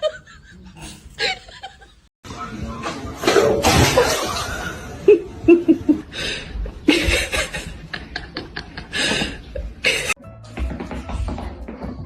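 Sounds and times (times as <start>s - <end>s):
people laughing: 6.7s - 10.2s.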